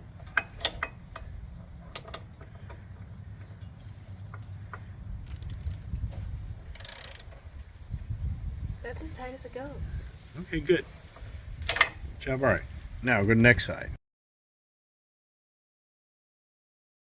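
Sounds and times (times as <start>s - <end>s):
steady low rumble: 0.0s - 6.8s.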